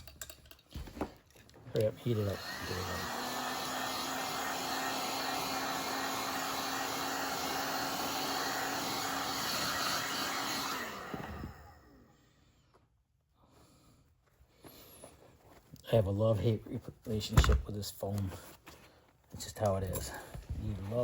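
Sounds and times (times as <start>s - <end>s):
hot-air blower running: 2.0s - 12.1s.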